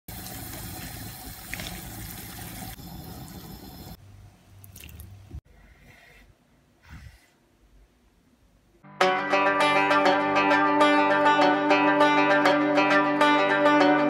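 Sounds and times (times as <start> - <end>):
fish frying in oil: 0.1 - 4.0.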